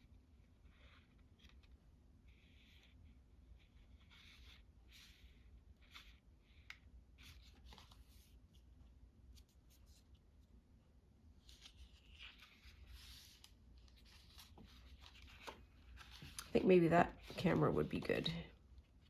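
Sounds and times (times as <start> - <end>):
paper rustling: 11.4 - 18.4.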